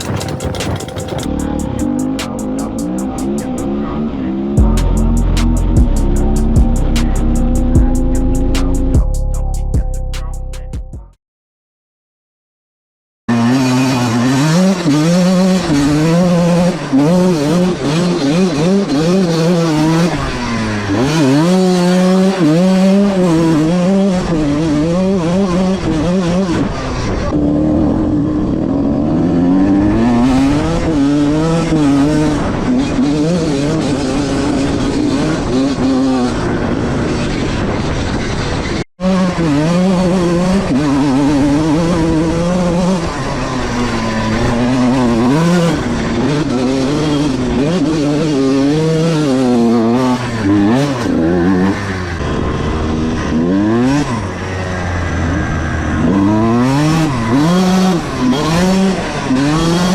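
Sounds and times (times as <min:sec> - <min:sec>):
two-stroke engine revving: 0:00.0 - 0:10.4, 0:13.3 - 0:59.9.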